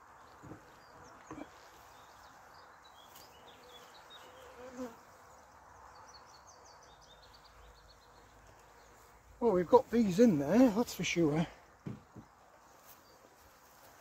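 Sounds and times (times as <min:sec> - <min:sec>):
honeybees buzzing: 0:00.0 - 0:14.0
soft knocks: 0:11.8 - 0:12.4.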